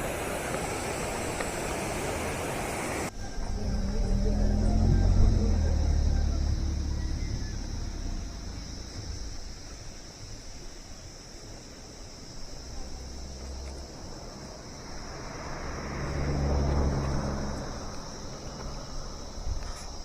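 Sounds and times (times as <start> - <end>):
insects droning: 0.0 - 20.0
low rumble: 3.1 - 10.0.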